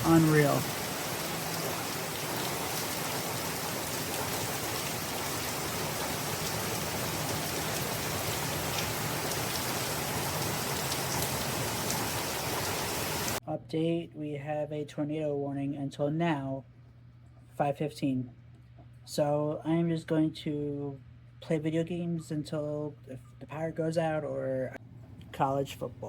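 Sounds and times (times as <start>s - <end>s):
heavy rain hissing: 0.0s - 13.4s.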